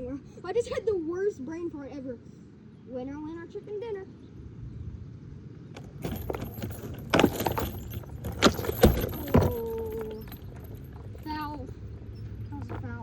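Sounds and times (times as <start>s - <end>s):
small hard objects clattering: 5.8s - 11.8s.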